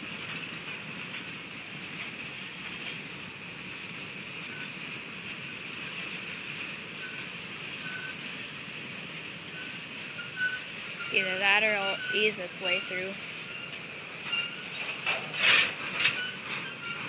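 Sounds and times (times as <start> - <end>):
freight train wheels rumbling: 0.0 - 17.0
high wheel squeaks: 7.0 - 8.9, 9.5 - 17.0.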